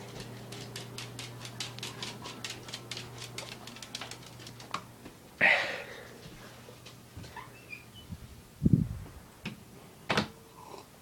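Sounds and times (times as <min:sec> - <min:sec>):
dog claws clicking and tapping: 0:00.0 - 0:04.9.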